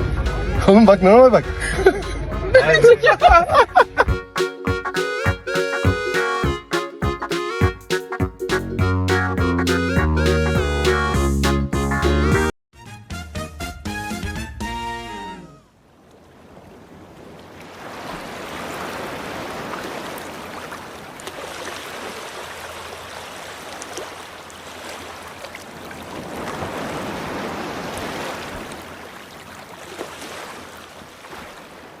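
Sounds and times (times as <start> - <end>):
rushing water: 16.0 - 32.0.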